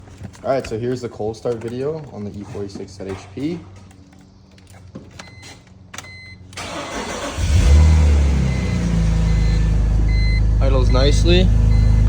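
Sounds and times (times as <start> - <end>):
car engine revving and idling: 6.6 - 12.0
short electronic beeps: 8.5 - 12.0.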